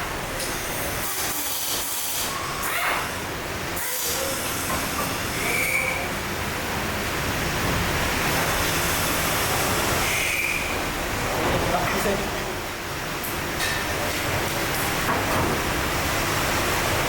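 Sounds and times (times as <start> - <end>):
short high squeal: 5.3 - 6.1, 10.0 - 10.8.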